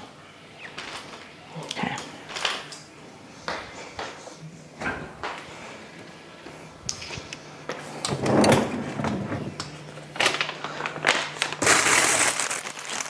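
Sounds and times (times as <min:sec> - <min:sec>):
plastic bags rustling: 0:09.3 - 0:13.0.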